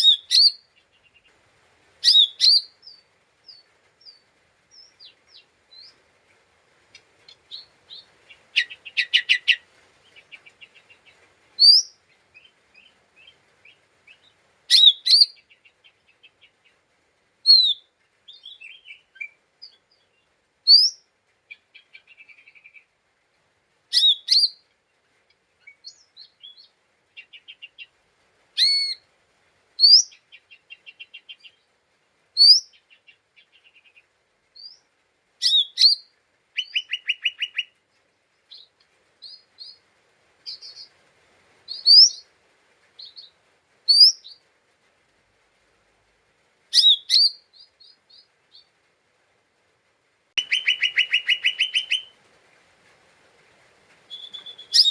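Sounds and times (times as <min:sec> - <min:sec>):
rising whistled bird notes: 0:50.4 - 0:52.1, 0:54.1 - 0:54.9.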